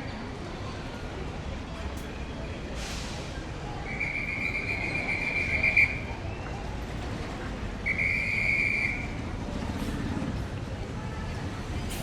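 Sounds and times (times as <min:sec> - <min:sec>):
low rumble of street noise: 0:00.0 - 0:12.0
whistle blasts: 0:03.9 - 0:06.1, 0:07.8 - 0:09.2.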